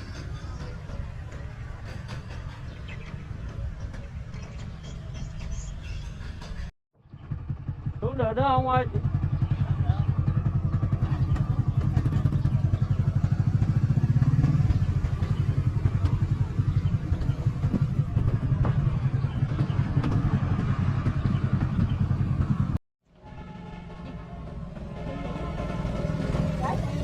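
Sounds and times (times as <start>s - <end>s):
steady engine sound: 0.0s - 22.8s, 23.4s - 27.0s
engine clatter knocks: 6.4s - 22.8s
small motorcycle engine running: 7.0s - 22.8s.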